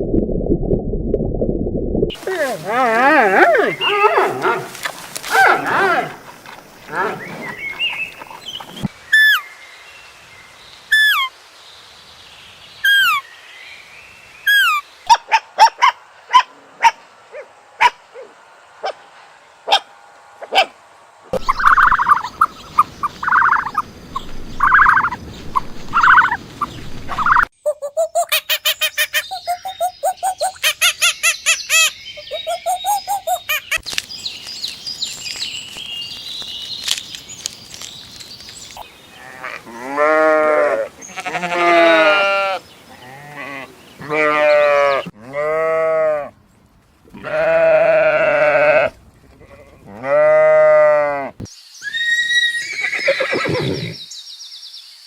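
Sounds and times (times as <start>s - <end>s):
long wavering bleats: 2.2s - 6.2s, 39.1s - 46.3s, 47.1s - 51.4s
animal barks: 2.5s - 6.2s, 15.1s - 19.0s, 19.6s - 20.8s
pulsed chattering call: 21.4s - 23.8s.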